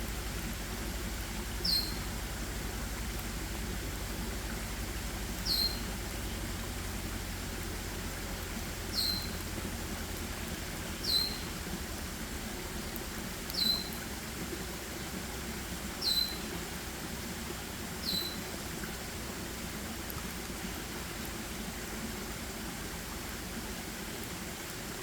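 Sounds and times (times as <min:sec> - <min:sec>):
forest background hiss: 0:00.0 - 0:25.0
small animal squeaking: 0:08.9 - 0:09.4, 0:11.0 - 0:11.4.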